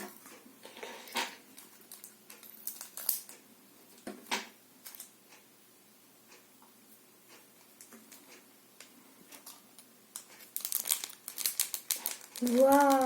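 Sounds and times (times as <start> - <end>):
packaging rustling: 10.2 - 13.0.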